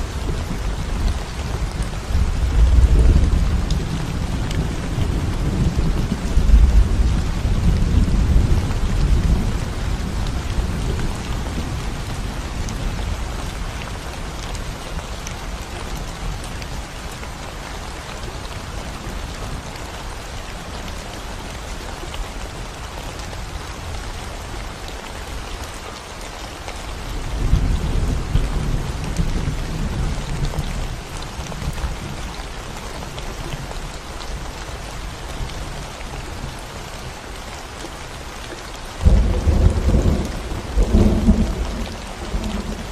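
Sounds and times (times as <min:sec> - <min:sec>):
thunder rumbles: 0:00.0 - 0:13.7, 0:39.0 - 0:42.9
rain on concrete road: 0:00.0 - 0:42.9.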